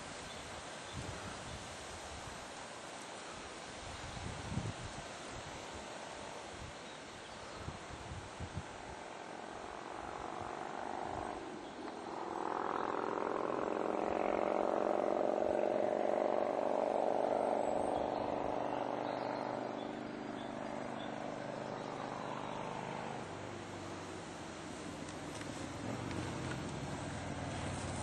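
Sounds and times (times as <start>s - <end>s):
distant motorcycle engine: 9.2s - 28.0s.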